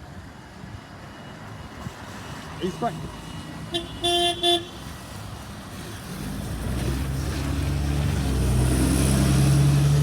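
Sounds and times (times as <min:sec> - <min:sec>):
bus horn toot: 0:03.7 - 0:04.8
bus diesel engine approaching: 0:04.8 - 0:10.0.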